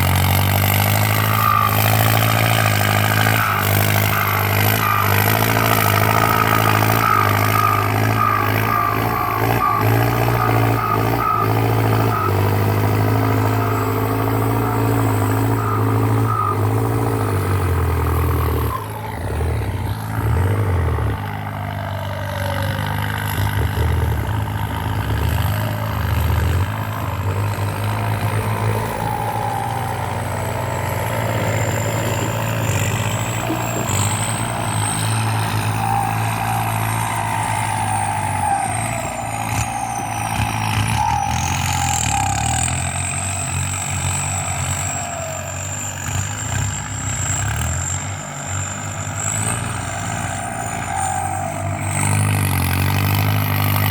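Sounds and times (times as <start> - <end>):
tractor diesel engine under load: 0.0 - 53.9
turbo whistle: 0.7 - 23.8, 27.8 - 46.8.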